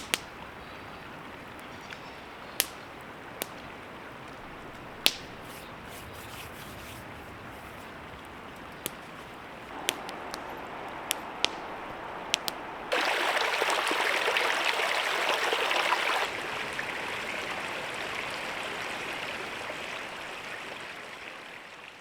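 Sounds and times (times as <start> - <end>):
creek water flowing: 0.0 - 22.0
sharp clicks: 2.5 - 3.7, 9.7 - 12.6.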